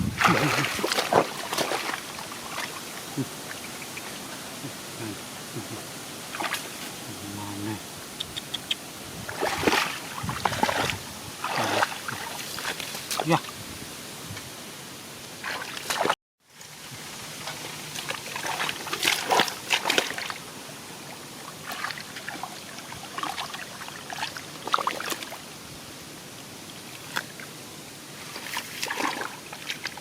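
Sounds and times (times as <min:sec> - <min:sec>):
shallow water sloshing and trickling: 0:00.0 - 0:03.6, 0:06.3 - 0:07.0, 0:09.2 - 0:13.3, 0:15.4 - 0:16.2, 0:16.8 - 0:25.5, 0:28.2 - 0:30.0
small water splashes: 0:00.1 - 0:04.2, 0:06.3 - 0:06.9, 0:09.2 - 0:13.4, 0:15.4 - 0:16.2, 0:17.4 - 0:25.4, 0:28.2 - 0:30.0.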